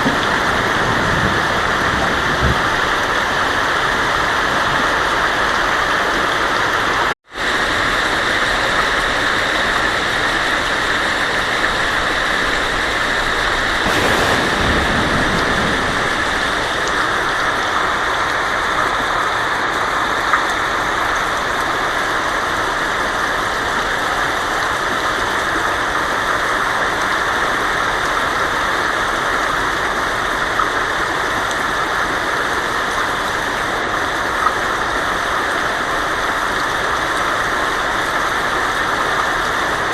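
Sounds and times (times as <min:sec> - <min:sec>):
heavy rain on a tin roof: 0:00.0 - 0:39.9
low rumble of thunder: 0:13.4 - 0:18.6.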